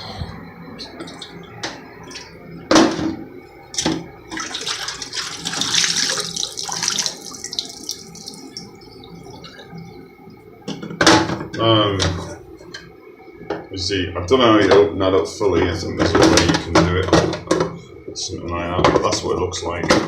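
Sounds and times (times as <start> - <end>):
water pouring and splashing: 4.3 - 8.8.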